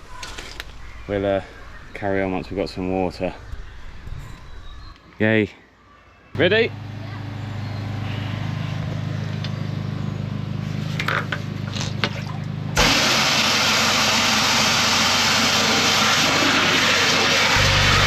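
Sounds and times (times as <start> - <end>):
engine running: 6.4 - 18.0.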